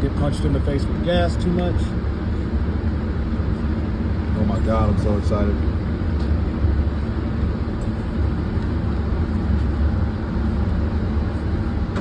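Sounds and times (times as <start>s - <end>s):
ventilation system rumble: 0.0s - 12.0s.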